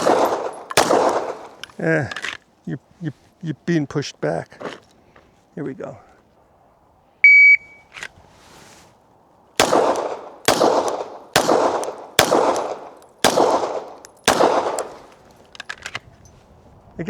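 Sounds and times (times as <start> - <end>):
pistol shots echoing: 0.0 - 1.9, 9.6 - 15.6
shot timer beep: 7.2 - 7.9.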